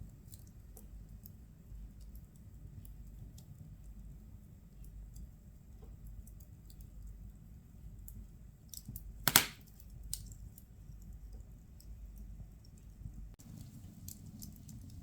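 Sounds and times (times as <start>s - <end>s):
fire crackling and popping: 0.0s - 15.0s
loud wood crack: 9.2s - 9.6s
fire low rumble: 11.2s - 15.0s.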